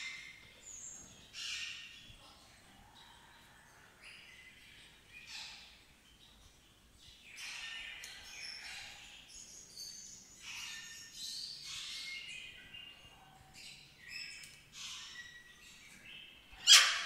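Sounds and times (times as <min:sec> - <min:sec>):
songbirds chirping and singing: 0:00.0 - 0:17.0.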